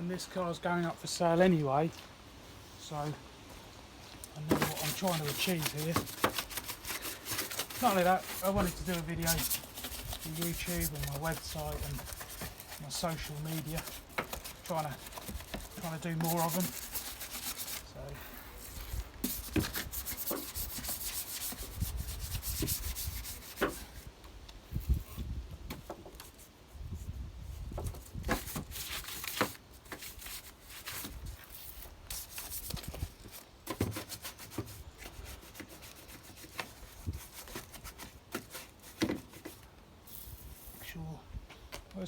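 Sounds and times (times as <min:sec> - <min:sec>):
brush scrubbing: 0:04.4 - 0:23.9, 0:33.8 - 0:40.8.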